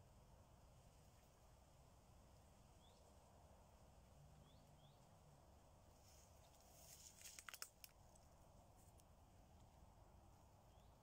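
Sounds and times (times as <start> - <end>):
small birds chirping: 2.7 - 3.2, 4.4 - 5.2, 10.5 - 11.0
crackling and rustling: 6.0 - 9.1.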